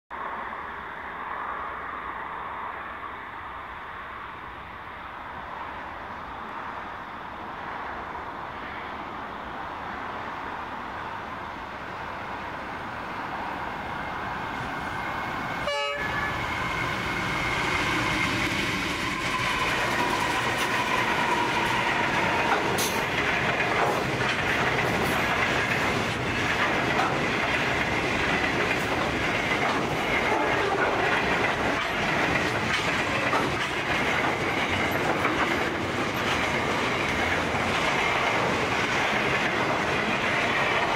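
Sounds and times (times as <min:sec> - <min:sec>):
locomotive engine noise: 0:10.7 - 0:40.9
wagon wheels clacking on rails: 0:17.1 - 0:40.9.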